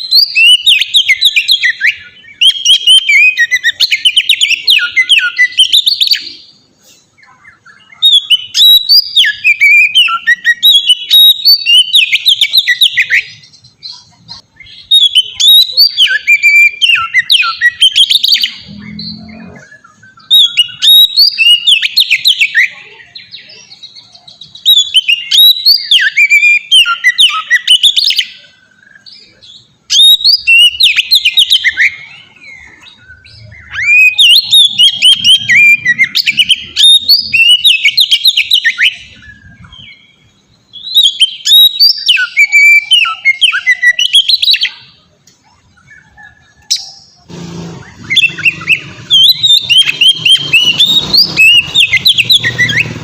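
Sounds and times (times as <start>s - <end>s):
bird singing whistled phrases: 0.0s - 6.6s, 7.2s - 45.1s, 47.9s - 53.0s.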